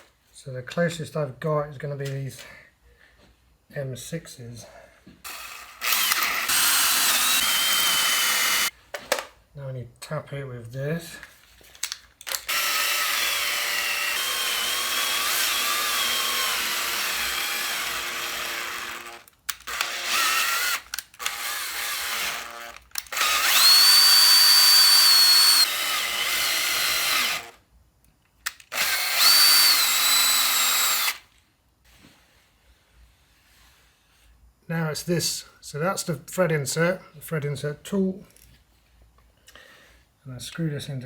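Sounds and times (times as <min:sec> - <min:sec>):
power drill whining: 0:05.3 - 0:08.8, 0:12.3 - 0:27.6, 0:28.6 - 0:31.3.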